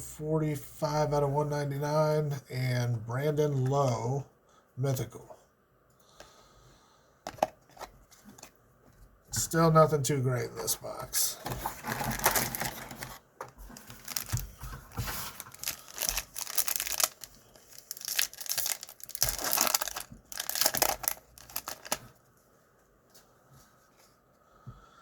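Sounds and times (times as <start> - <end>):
wrapper tearing and crinkling: 11.8 - 13.1, 13.7 - 14.5, 15.1 - 22.2.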